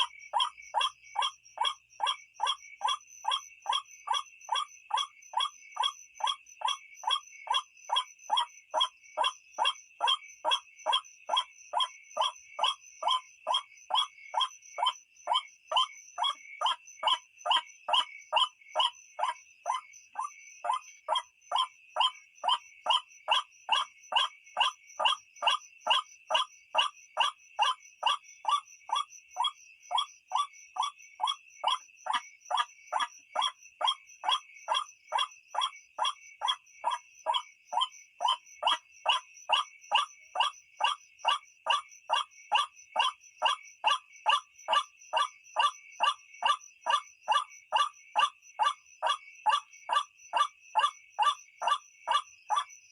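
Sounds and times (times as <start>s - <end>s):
waterhen croaking calls: 0.0s - 14.5s.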